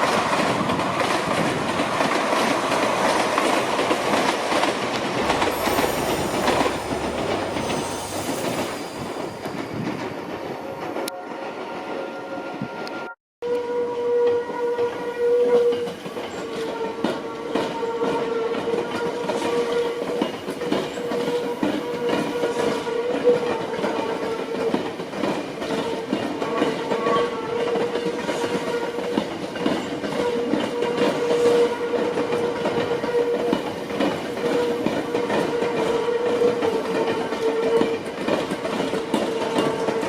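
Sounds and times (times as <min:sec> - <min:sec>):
wheel and rail clatter: 0:00.0 - 0:11.1, 0:15.8 - 0:40.0
electric train hum: 0:00.0 - 0:13.1.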